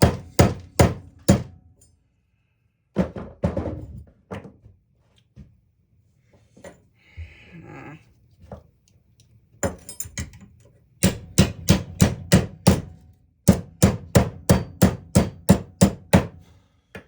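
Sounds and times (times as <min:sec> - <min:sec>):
hammer striking metal part: 0:00.0 - 0:01.6, 0:11.0 - 0:16.4.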